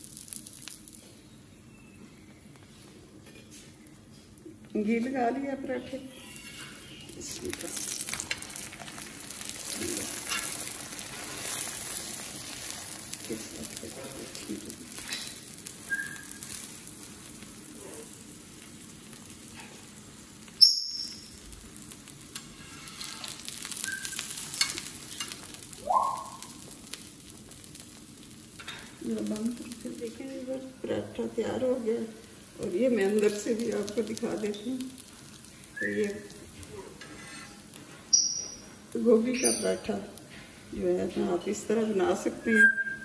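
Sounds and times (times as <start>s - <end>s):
ghee sizzling in a pan: 0.0s - 43.0s
metal spatula scraping pan: 6.1s - 7.0s, 10.0s - 11.9s, 22.3s - 23.5s, 37.0s - 37.7s.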